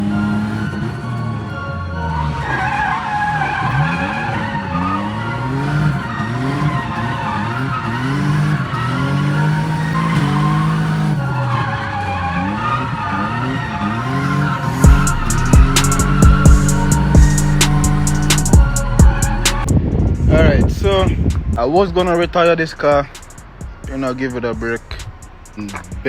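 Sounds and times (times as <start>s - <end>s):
car engine revving: 0.0s - 26.0s
tyre squeal: 2.1s - 19.7s.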